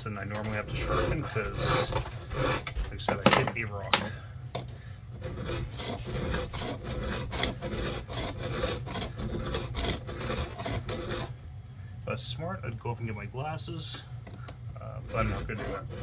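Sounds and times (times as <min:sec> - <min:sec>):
file rasping on chainsaw chain: 0:00.3 - 0:02.7, 0:05.2 - 0:11.3, 0:15.0 - 0:16.0.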